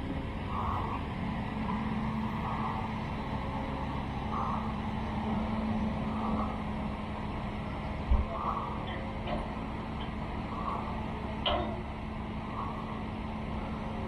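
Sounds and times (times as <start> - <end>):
construction machine engine running: 0.0 - 14.0
hissing reversing alarm: 0.4 - 8.9.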